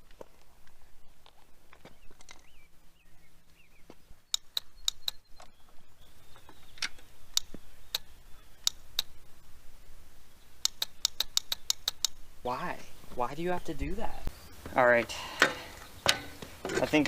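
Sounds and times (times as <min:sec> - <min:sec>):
sharp metallic clicks: 0:04.3 - 0:05.2, 0:06.8 - 0:09.2, 0:10.6 - 0:12.2, 0:15.4 - 0:17.0.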